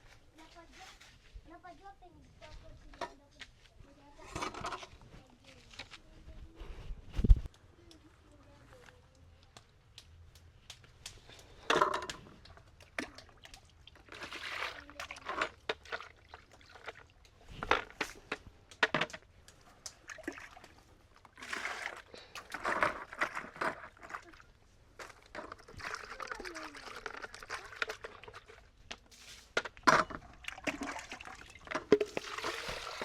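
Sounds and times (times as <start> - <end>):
water pouring and sloshing: 4.2 - 6.0, 11.3 - 33.0.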